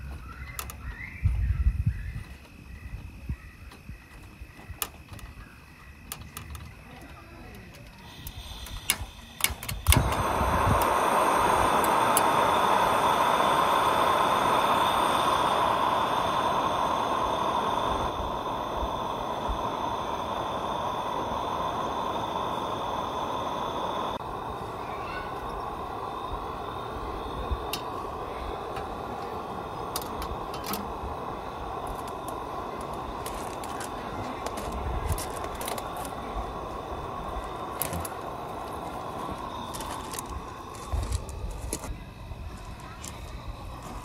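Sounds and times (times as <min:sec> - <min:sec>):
burning gas hissing: 0:00.0 - 0:44.0
lantern igniter clicks: 0:08.0 - 0:24.4, 0:25.4 - 0:42.0.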